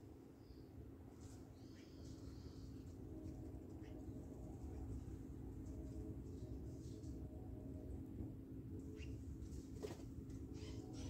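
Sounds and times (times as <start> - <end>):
low background rumble: 0.0 - 11.0
faint bird chirps: 1.5 - 4.9, 8.8 - 9.2, 10.5 - 11.0.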